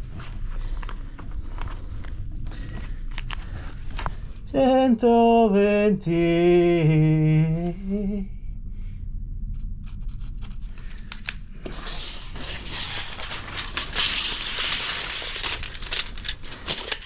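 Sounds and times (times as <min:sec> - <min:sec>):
low steady rumble: 0:00.0 - 0:17.0
material crushed or torn crackling: 0:10.2 - 0:17.0.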